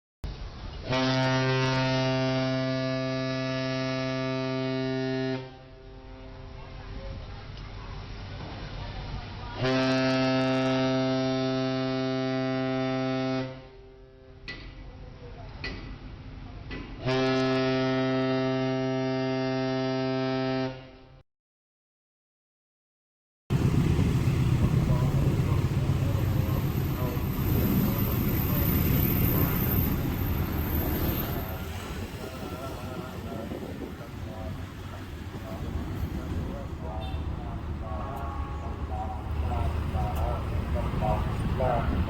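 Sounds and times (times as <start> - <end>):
low horn blast: 0.8 - 6.8, 9.6 - 14.5, 17.0 - 21.2, 23.5 - 42.0.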